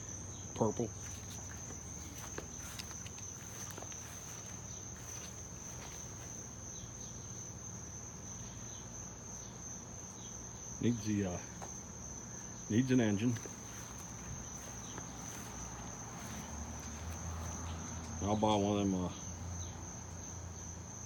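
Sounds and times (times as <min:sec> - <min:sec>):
crickets trilling: 0:00.0 - 0:21.0
faint clicks or footsteps: 0:01.0 - 0:06.4.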